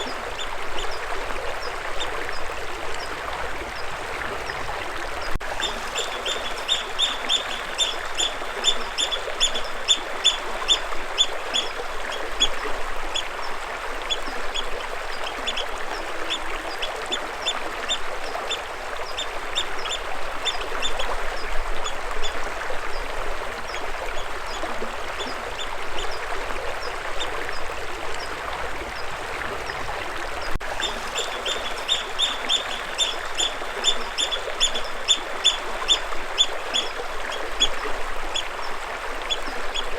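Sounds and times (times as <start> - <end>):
stream flowing: 0.0 - 39.9
bird chirping: 5.6 - 11.8, 30.8 - 35.6.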